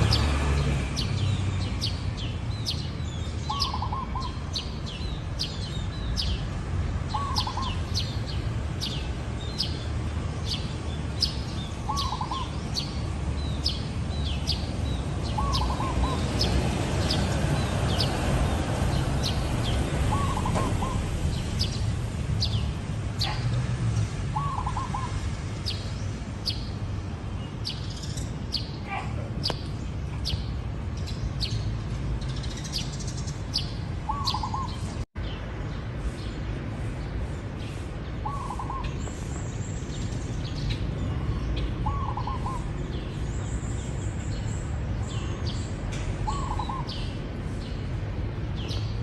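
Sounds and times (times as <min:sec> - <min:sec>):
small birds chirping: 0:00.0 - 0:49.0.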